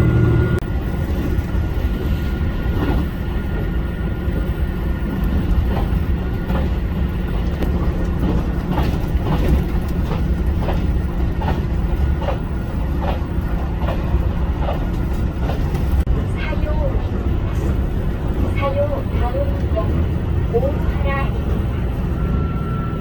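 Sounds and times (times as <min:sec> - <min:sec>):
railcar rumble: 0:00.0 - 0:23.0
wheels clicking over rails: 0:04.4 - 0:22.4.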